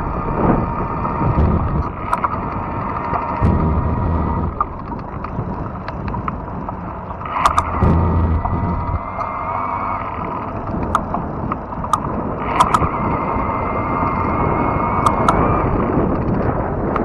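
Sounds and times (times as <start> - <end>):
sharp clicks and ticks: 1.3 - 9.4, 10.7 - 13.0, 15.0 - 15.5
electric motor whine: 3.4 - 4.6, 7.6 - 10.1.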